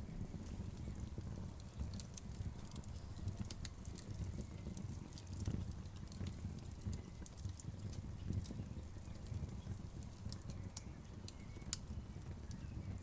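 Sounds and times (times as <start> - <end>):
fire rumbling: 0.0 - 13.0
logs crackling and popping: 0.0 - 13.0.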